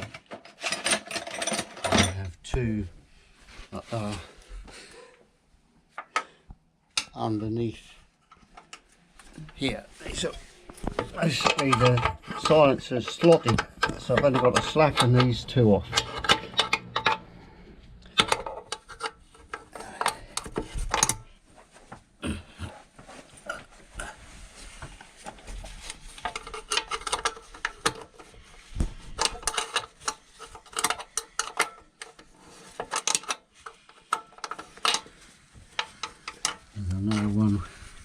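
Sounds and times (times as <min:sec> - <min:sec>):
metal hand tools clinking on bolts: 0:11.2 - 0:17.3.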